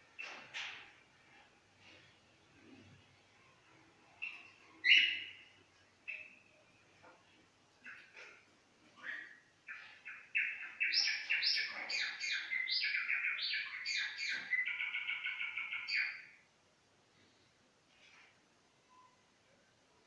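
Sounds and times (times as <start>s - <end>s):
sparrow singing: 4.2s - 6.6s, 9.0s - 16.4s.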